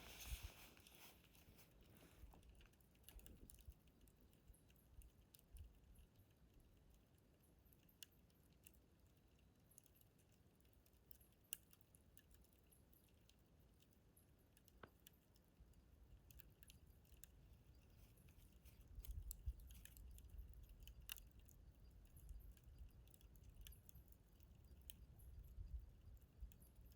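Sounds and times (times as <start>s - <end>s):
campfire crackling and popping: 14.5s - 26.9s.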